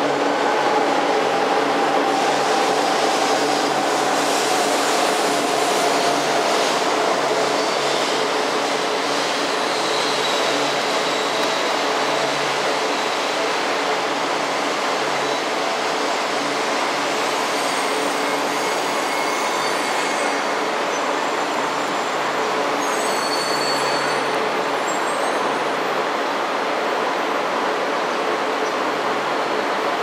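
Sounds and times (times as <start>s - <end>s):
high-pitched brake squeal: 17.2s - 20.7s, 22.8s - 25.6s.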